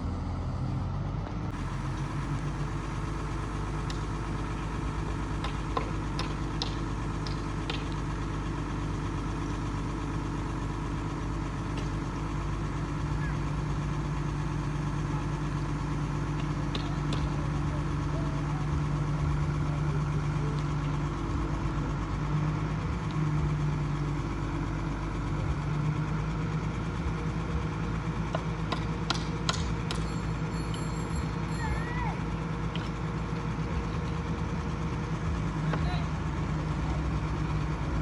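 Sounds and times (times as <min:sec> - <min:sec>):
construction vehicle engine idling: 0:00.0 - 0:38.0.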